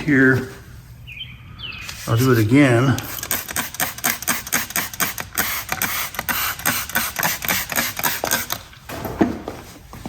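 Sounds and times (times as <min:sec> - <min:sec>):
spray bottle hissing squirts: 0:03.0 - 0:08.6.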